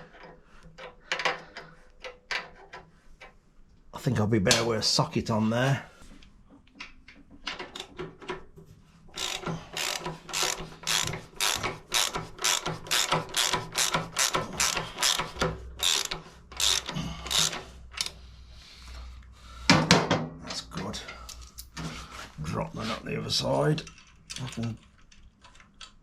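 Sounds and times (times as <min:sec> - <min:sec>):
socket ratchet clicking: 0:09.2 - 0:18.2.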